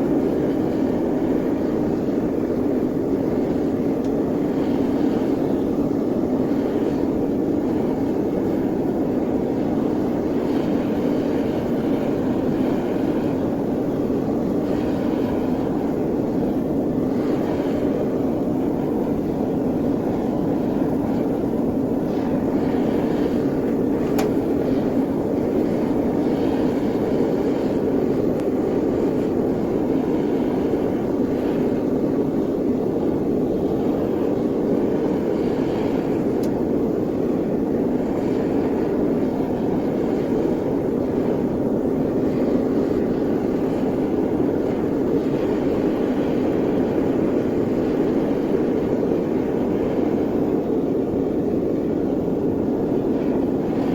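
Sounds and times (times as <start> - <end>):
furnace roaring: 2.9 - 38.6.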